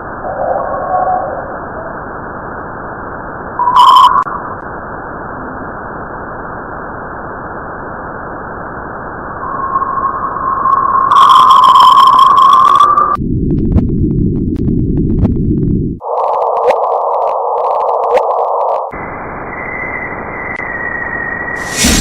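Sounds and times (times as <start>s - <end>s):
short loud tone: 3.6s - 4.3s
steady high tone: 3.6s - 4.6s, 9.2s - 13.2s.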